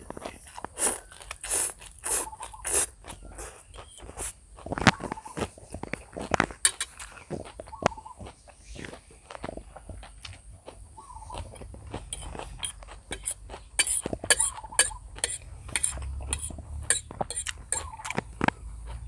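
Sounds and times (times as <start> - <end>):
cutlery clinking against a dish: 6.6 - 7.1, 11.6 - 18.5.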